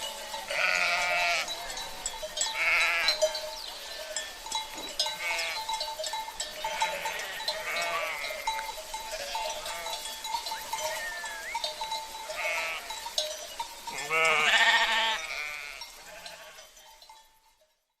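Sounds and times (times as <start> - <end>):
clinking animal bells: 0.0 - 18.0
sheep bleating: 0.2 - 2.0, 2.6 - 3.2, 5.1 - 5.8, 6.6 - 13.0, 13.9 - 16.7.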